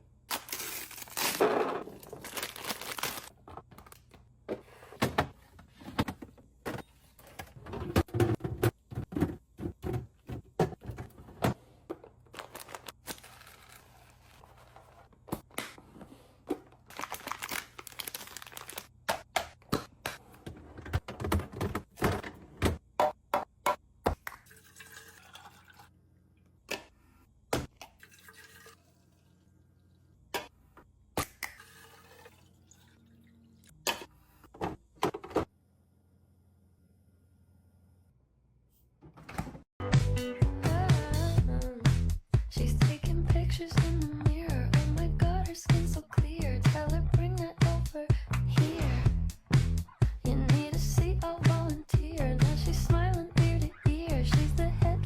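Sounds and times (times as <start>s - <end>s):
liquid pouring into containers: 24.3s - 26.0s, 27.8s - 30.2s, 31.5s - 33.7s.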